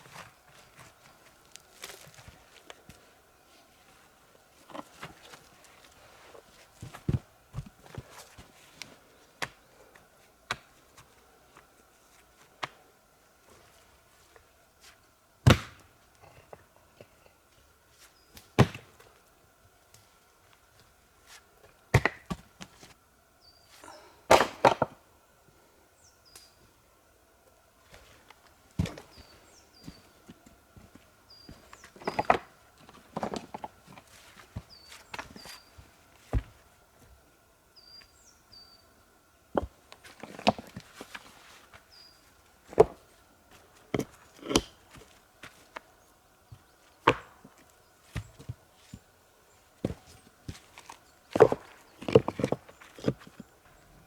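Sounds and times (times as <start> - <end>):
axe chopping wood: 15.4 - 15.9, 18.6 - 18.9, 21.9 - 22.4, 24.3 - 25.0, 47.0 - 47.4
small bird chirping: 37.8 - 38.9.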